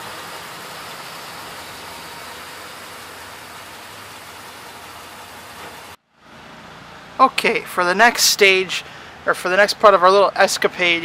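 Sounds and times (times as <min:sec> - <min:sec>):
steady hiss: 0:00.0 - 0:06.0
engine idling: 0:00.0 - 0:10.2.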